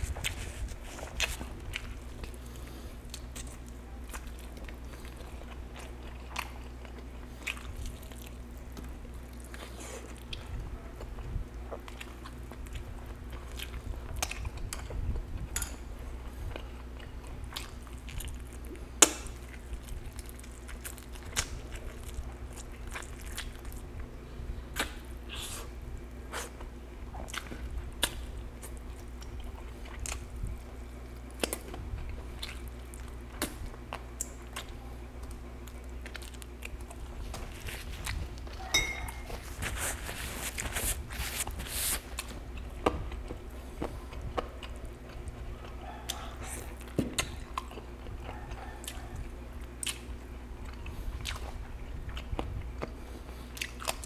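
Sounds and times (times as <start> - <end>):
low steady hum: 0.0 - 54.0
person chewing chicken: 0.0 - 54.0.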